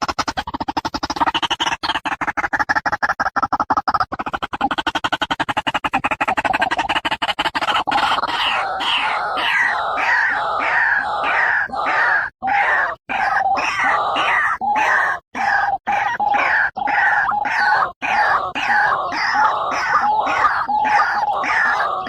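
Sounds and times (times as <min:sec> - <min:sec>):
waterhen calling: 0:07.9 - 0:22.0.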